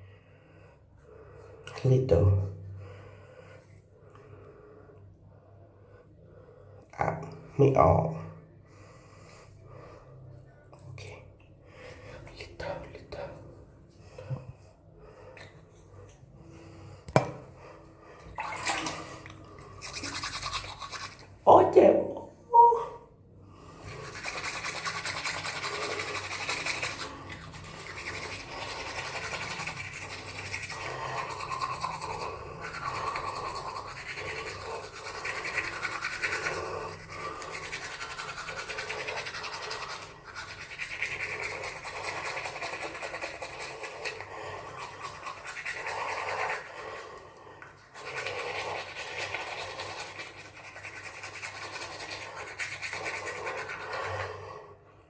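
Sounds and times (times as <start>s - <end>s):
scratchy brushing strokes: 19.8s - 21.4s, 23.8s - 47.0s.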